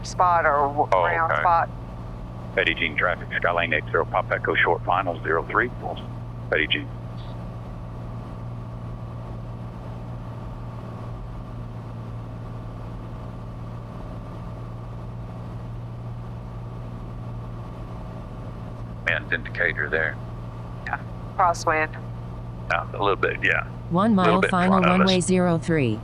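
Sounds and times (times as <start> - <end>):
propeller plane engine drone: 0.0 - 26.0.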